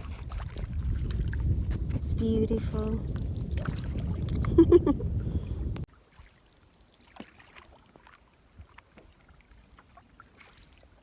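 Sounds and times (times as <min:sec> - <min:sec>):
wind rumble on microphone: 0:00.0 - 0:05.9.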